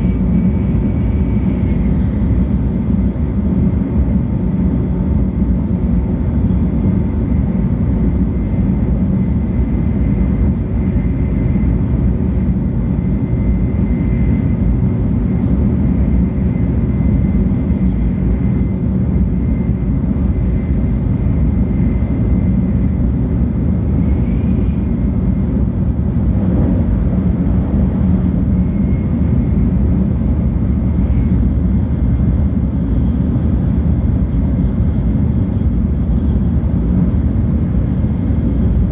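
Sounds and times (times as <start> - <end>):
faint high whine: 0.0 - 38.9
train wheels rumbling: 24.1 - 29.4.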